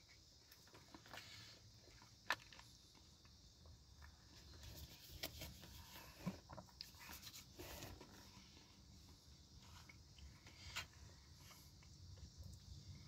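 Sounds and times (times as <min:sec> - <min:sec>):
faint chewing with mouth clicks: 0:06.2 - 0:12.8.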